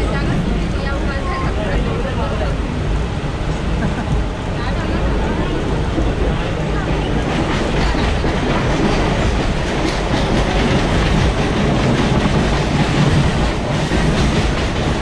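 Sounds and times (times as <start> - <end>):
train wheels rumbling on rails: 0.0 - 15.0
rail-joint clickety-clack: 5.2 - 15.0.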